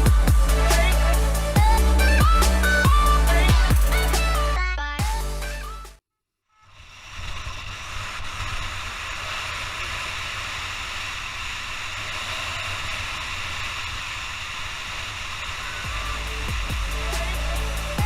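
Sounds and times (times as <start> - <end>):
wind rushing on helmet camera: 6.7 - 16.8
low rumble: 12.8 - 18.0.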